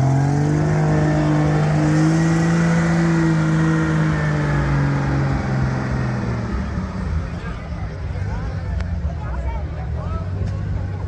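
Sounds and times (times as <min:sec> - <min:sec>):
tractor engine revving high: 0:00.0 - 0:07.2.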